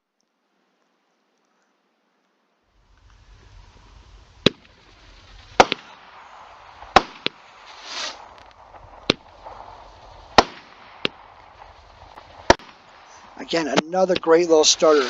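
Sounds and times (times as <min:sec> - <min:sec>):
firework hiss: 0:02.8 - 0:15.0
firework bangs: 0:02.9 - 0:15.0.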